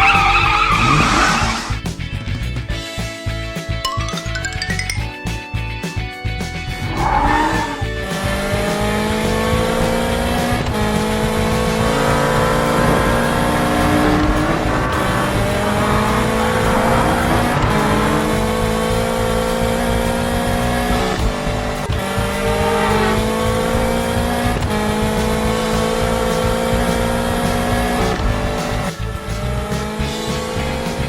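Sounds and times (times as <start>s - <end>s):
cartoon car engines running: 6.7s - 31.0s.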